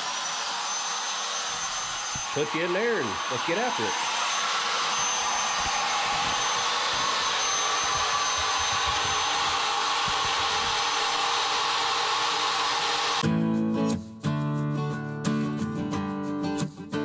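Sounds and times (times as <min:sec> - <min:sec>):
router spindle whirring: 0:00.0 - 0:13.2.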